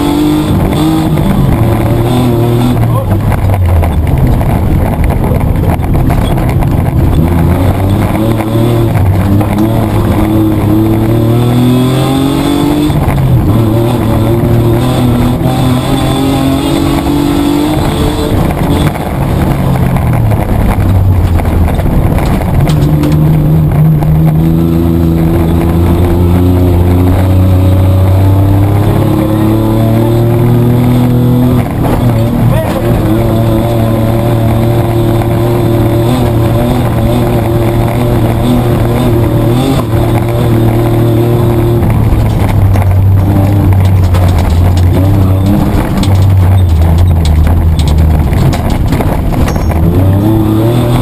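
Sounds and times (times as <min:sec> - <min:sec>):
car engine pulling hard: 0:00.0 - 0:51.0
knocks from rough track: 0:17.8 - 0:24.5, 0:39.8 - 0:50.2.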